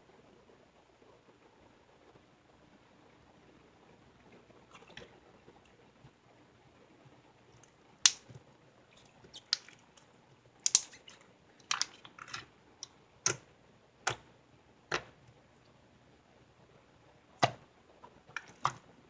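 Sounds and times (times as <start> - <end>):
sharp clicks and crackles: 7.6 - 8.4, 9.1 - 13.4.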